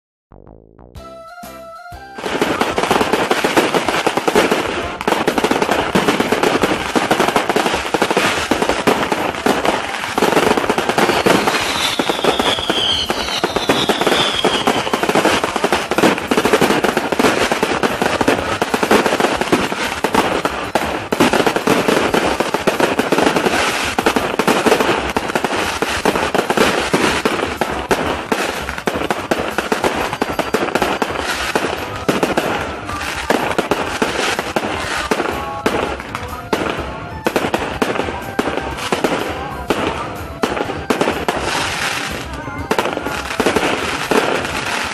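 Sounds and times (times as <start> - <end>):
falling firework whistle: 1.0 - 3.9, 9.7 - 19.6
firecrackers crackling bangs: 2.2 - 44.9.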